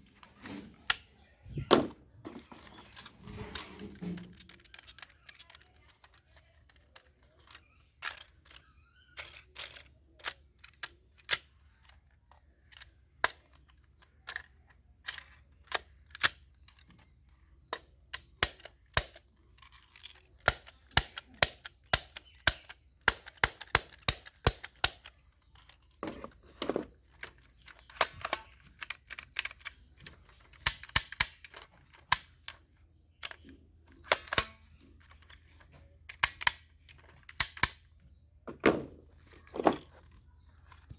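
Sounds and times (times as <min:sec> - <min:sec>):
rustling: 0:00.0 - 0:06.8
plastic toy gun clicks: 0:04.0 - 0:26.4, 0:27.0 - 0:38.1.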